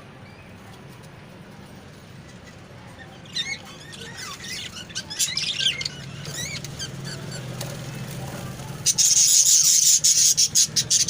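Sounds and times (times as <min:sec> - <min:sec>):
parrot chirping: 0:02.4 - 0:07.5, 0:08.8 - 0:11.0.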